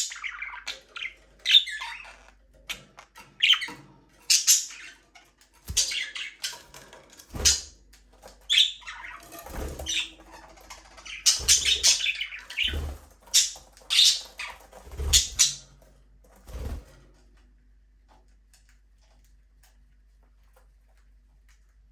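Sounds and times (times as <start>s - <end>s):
budgerigars chirping and squawking: 0.0s - 15.8s.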